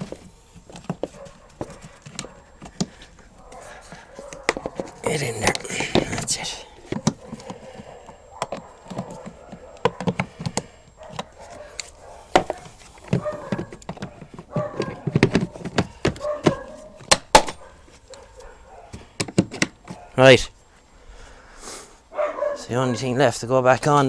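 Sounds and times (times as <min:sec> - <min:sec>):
plastic trim clicks and knocks: 0:08.4 - 0:17.6.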